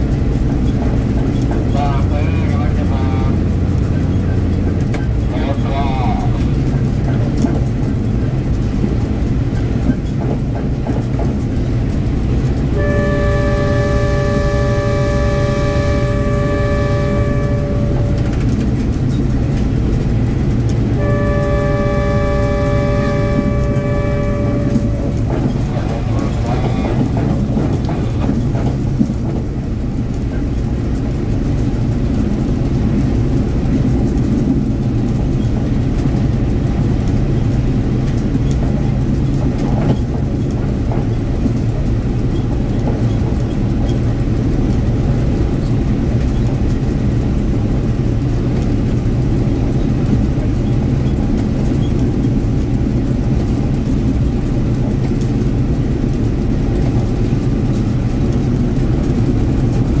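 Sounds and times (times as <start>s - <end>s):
train engine drone: 0.0s - 60.0s
wheels rumbling on rails: 0.0s - 60.0s.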